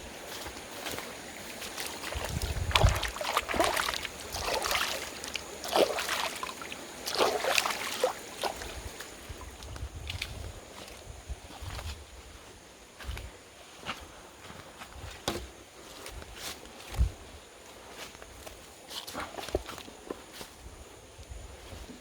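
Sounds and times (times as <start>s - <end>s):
water splashing and sloshing: 0.1s - 11.9s
wind buffeting microphone: 2.1s - 4.4s, 8.6s - 13.3s.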